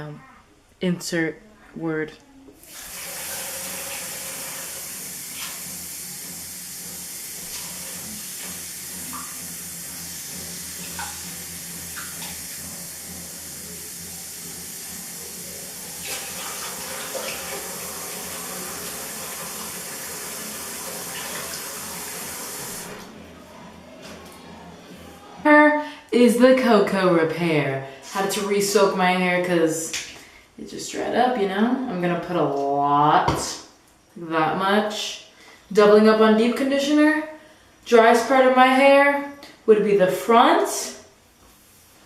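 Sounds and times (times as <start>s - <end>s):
tap water running: 2.6s - 23.2s.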